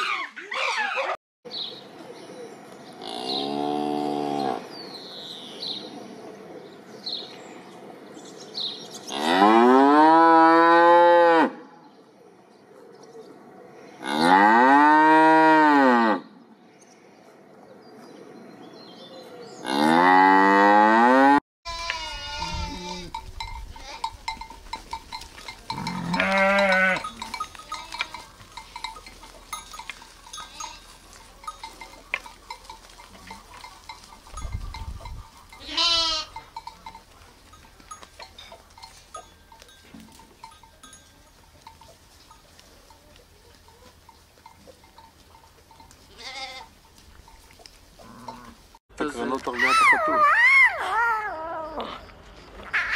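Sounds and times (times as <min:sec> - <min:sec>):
calf mooing: 0:19.6 - 0:23.2, 0:25.7 - 0:28.3, 0:35.6 - 0:36.4, 0:46.1 - 0:46.7
sheep and lambs bleating: 0:21.7 - 0:24.1, 0:25.7 - 0:28.5, 0:30.3 - 0:31.0, 0:35.3 - 0:36.5, 0:46.1 - 0:46.8.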